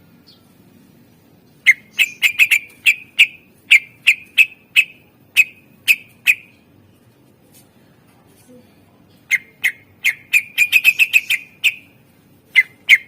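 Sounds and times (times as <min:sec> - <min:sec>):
bird whistling sharp notes: 0:01.7 - 0:06.5, 0:09.3 - 0:11.9.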